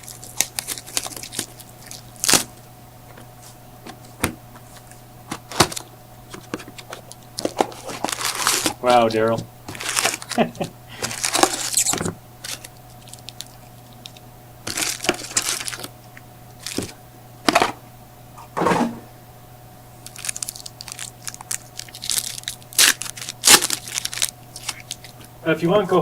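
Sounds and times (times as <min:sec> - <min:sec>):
card pack wrappers tearing and crinkling: 0:00.0 - 0:02.6, 0:04.8 - 0:09.0, 0:09.7 - 0:15.9, 0:16.6 - 0:17.6, 0:20.0 - 0:25.3.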